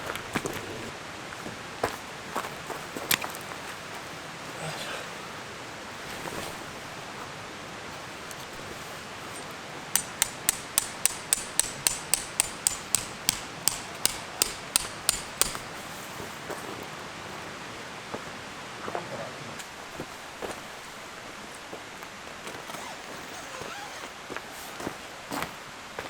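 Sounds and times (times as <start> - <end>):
hammer striking metal tent peg: 10.0 - 15.8.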